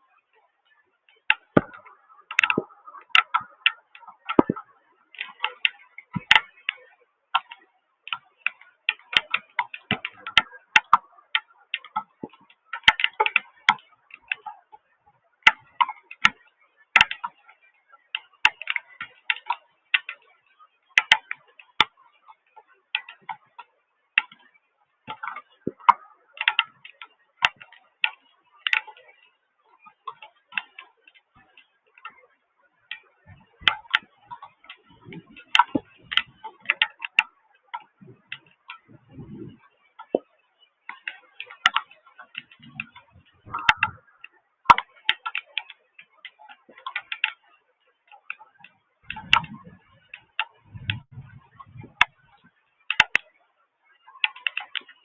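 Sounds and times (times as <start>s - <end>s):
drips tapping on hard surface: 4.3s - 4.6s
dull low thuds: 50.6s - 52.0s.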